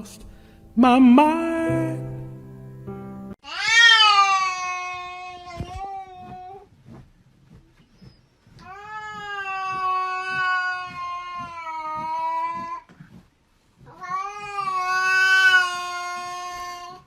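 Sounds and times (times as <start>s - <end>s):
cat yowling: 3.4s - 6.6s, 13.9s - 17.0s.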